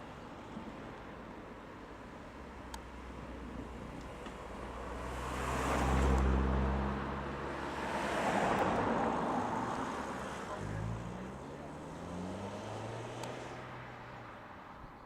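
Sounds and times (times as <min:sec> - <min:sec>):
cars driving past: 0:02.9 - 0:14.8.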